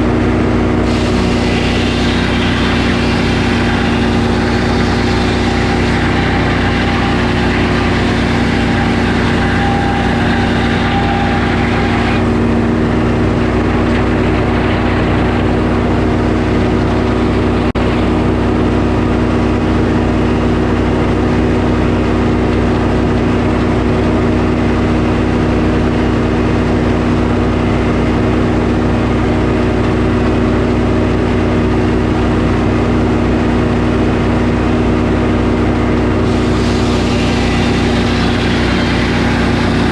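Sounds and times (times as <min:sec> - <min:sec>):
sawmill engine running: 0:00.0 - 0:39.9
saw hiss with faint whine: 0:00.9 - 0:12.2, 0:36.3 - 0:39.9.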